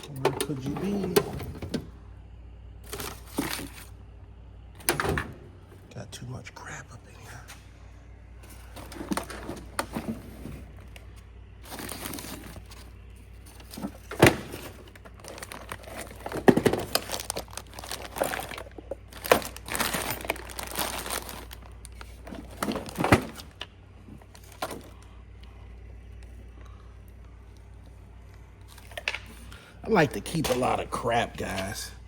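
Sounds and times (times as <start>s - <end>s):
items shuffled and moved: 0.0s - 2.0s, 2.8s - 4.0s, 8.4s - 26.4s, 27.8s - 31.8s
crinkling and rustling: 2.8s - 4.0s, 8.4s - 25.1s.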